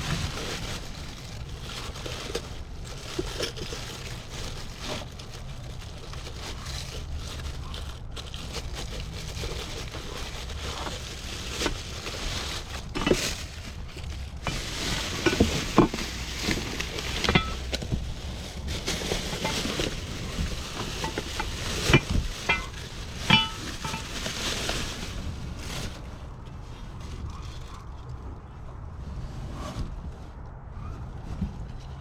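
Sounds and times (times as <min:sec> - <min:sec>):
hard objects clattering and clinking: 0:00.0 - 0:25.2.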